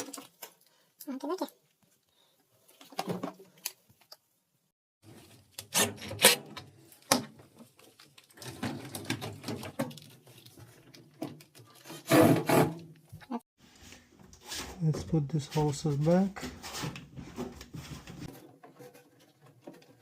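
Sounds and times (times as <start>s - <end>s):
plastic parts knocking and rattling: 2.7s - 4.2s, 6.1s - 13.2s
plastic parts clattering: 6.6s - 12.0s.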